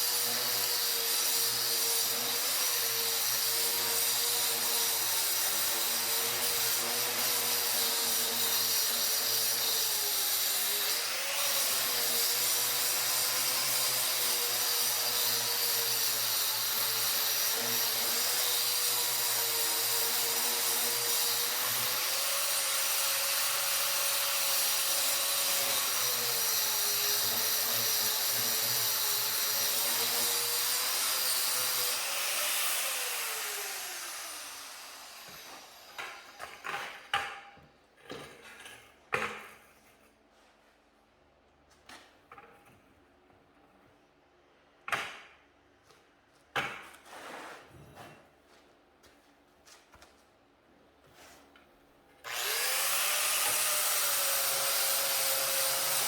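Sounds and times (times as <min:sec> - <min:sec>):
power tool running and spinning down: 0:00.0 - 0:36.6, 0:52.2 - 0:56.0.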